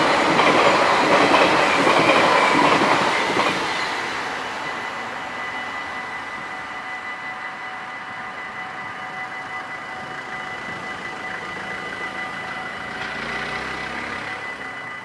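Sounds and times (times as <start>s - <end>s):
level crossing warning bells: 4.1s - 15.0s.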